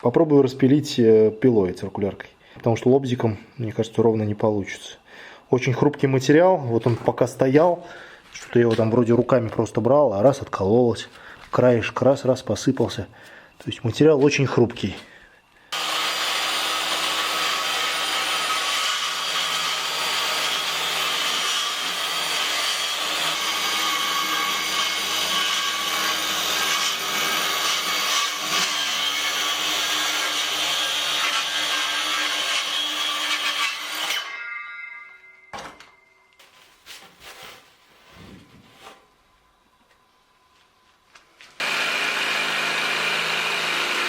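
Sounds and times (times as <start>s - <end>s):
circular saw cutting board: 41.6s - 44.0s.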